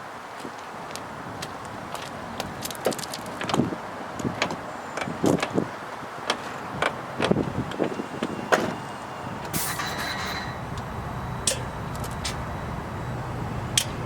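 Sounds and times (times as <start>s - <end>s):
low steady hum: 8.8s - 14.0s
short hiss: 9.5s - 10.8s.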